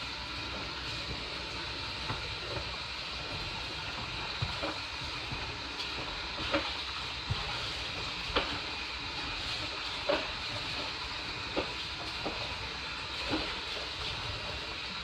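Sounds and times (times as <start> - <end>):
washing machine churning: 0.0 - 15.0.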